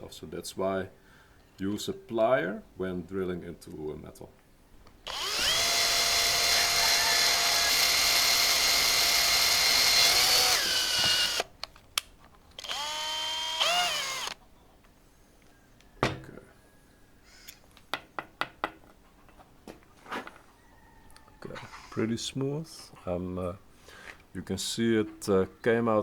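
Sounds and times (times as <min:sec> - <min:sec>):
electric drill boring metal: 0:05.1 - 0:11.5, 0:12.6 - 0:14.4.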